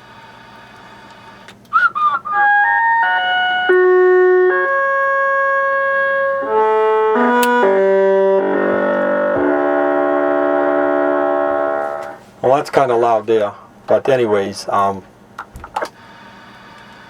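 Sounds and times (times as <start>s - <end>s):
electronic horn-like tune over radio: 1.8s - 12.2s.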